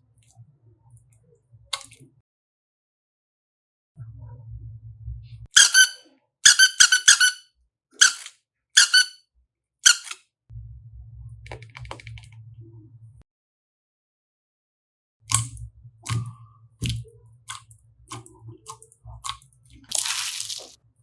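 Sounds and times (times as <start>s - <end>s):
high-pitched squeaks: 5.6s - 7.4s, 8.0s - 9.2s, 9.9s - 10.2s
low hum: 10.5s - 11.5s.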